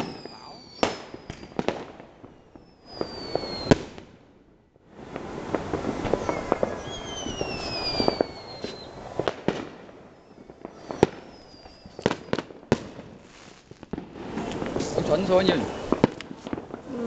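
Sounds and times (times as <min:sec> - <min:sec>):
falling firework whistle: 0:00.0 - 0:04.0, 0:05.1 - 0:12.5
fireworks crackling and banging: 0:00.0 - 0:17.0.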